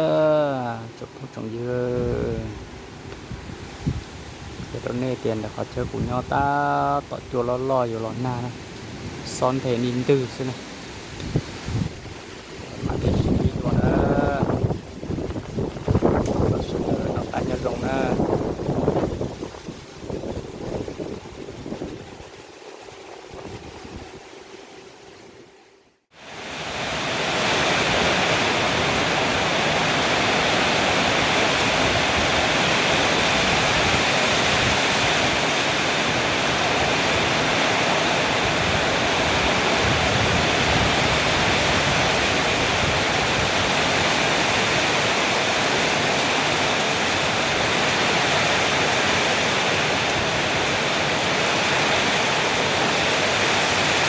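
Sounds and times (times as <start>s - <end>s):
heavy rain downpour: 0.0s - 4.8s, 7.8s - 25.0s, 26.2s - 54.0s.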